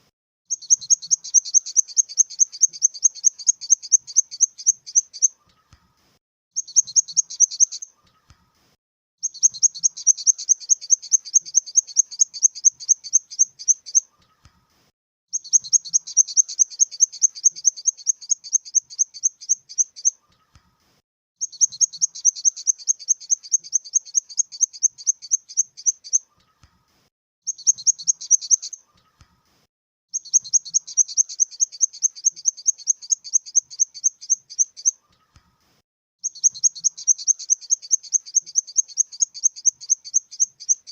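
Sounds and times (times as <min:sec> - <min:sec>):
grasshopper chirping trills: 0:00.5 - 0:05.3, 0:06.6 - 0:07.9, 0:09.2 - 0:14.0, 0:15.4 - 0:20.1, 0:21.4 - 0:26.2, 0:27.5 - 0:28.8, 0:30.2 - 0:34.9, 0:36.2 - 0:40.9.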